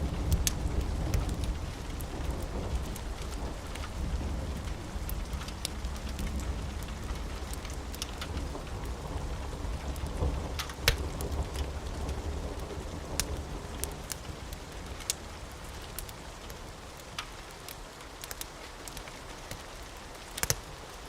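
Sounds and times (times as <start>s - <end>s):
low rumble of thunder: 0.0s - 16.8s
steady rain: 0.0s - 21.0s.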